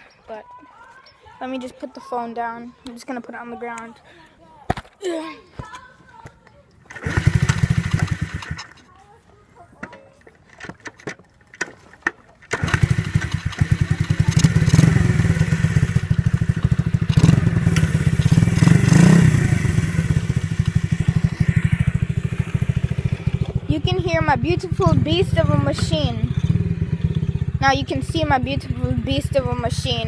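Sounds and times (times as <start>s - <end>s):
dirt bike engine running: 6.9s - 8.9s, 12.4s - 30.0s
clicks and knocks: 9.8s - 12.6s.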